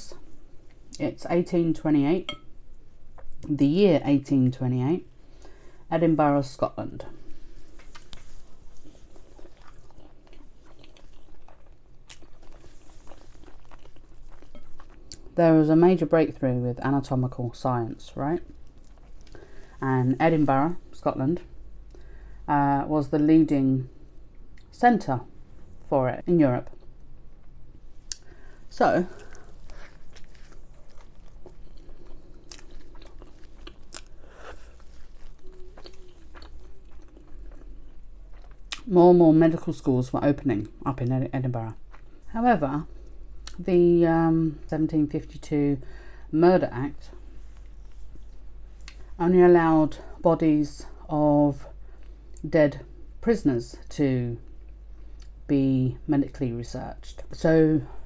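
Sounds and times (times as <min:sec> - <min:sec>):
chewing rice with wet mouth clicks: 0:07.8 - 0:15.3, 0:29.2 - 0:38.8.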